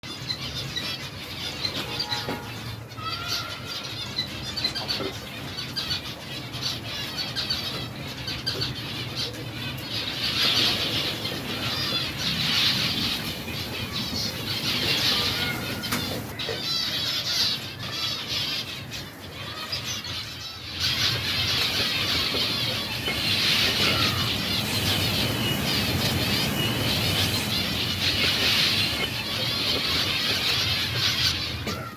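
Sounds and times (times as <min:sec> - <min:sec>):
finches chirping and chattering: 0:00.0 - 0:31.9
wings fluttering: 0:20.8 - 0:31.9.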